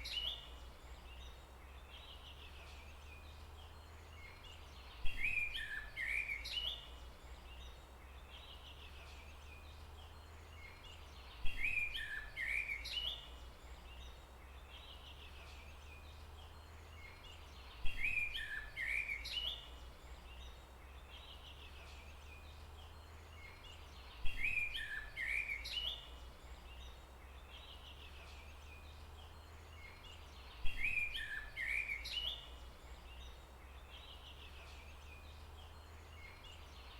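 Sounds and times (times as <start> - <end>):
bird chirping call: 14.8 - 36.9.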